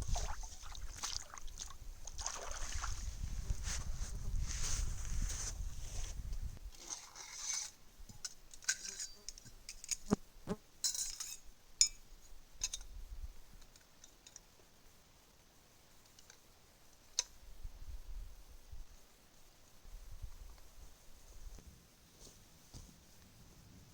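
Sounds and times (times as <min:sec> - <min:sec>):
wind rumble on microphone: 0:00.0 - 0:06.7, 0:17.5 - 0:19.0, 0:19.9 - 0:21.7.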